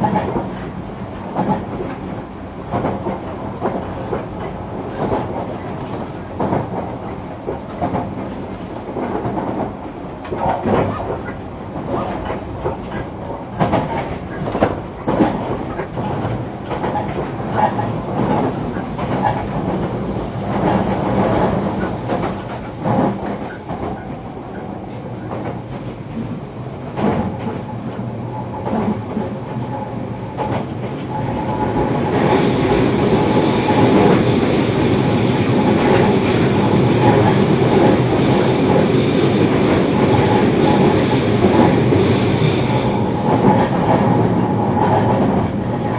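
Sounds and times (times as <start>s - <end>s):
train cabin rumble: 0.0s - 45.9s
train wheels clicking over track: 0.0s - 45.9s
high motor whine: 32.3s - 43.4s.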